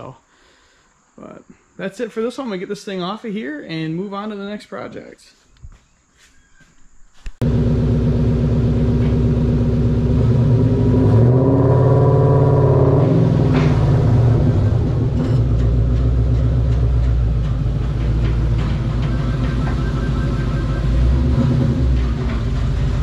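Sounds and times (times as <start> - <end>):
car engine revving and idling: 7.4 - 23.0.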